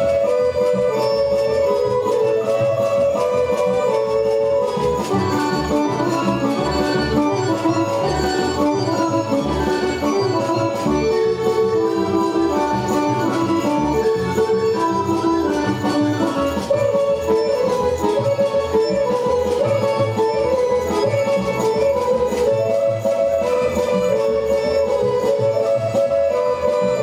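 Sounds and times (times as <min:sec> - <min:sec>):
folk music with bass beat: 0:00.0 - 0:27.0.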